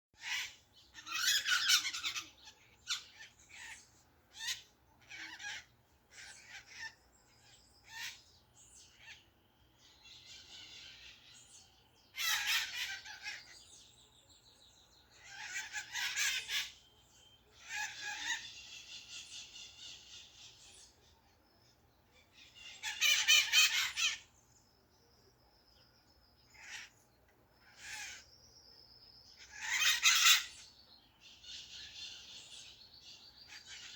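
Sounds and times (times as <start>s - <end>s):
harsh bird calls: 0.2s - 33.9s
whistled bird notes and trills: 0.2s - 33.9s.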